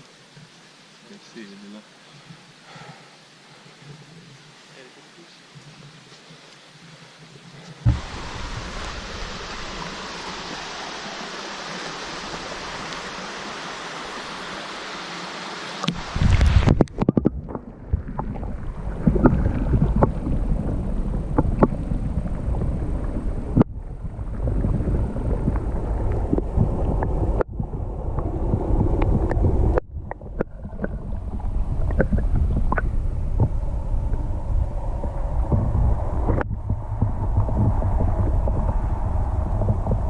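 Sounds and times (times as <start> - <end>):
wind buffeting microphone: 7.8 - 10.8, 15.9 - 40.0.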